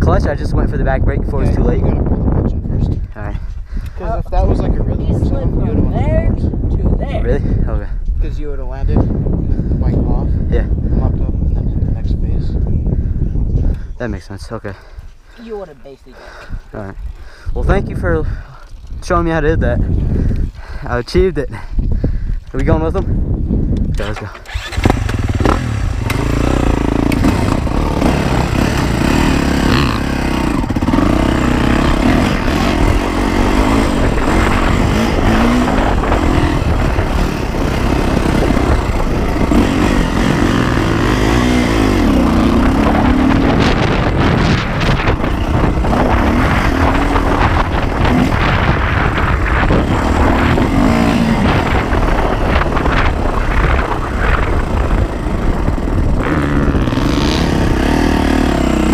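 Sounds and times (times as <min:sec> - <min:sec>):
dirt bike engine revving: 0:24.0 - 0:58.9.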